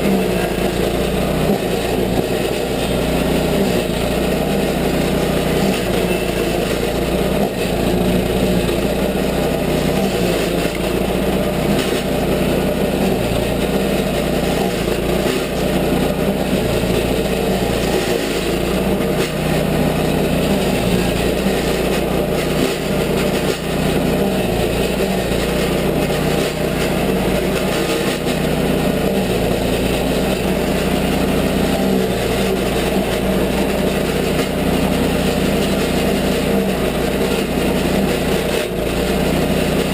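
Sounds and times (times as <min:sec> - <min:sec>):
cutter grinding wood: 0:00.0 - 0:39.9
stump grinder engine running: 0:00.0 - 0:39.9.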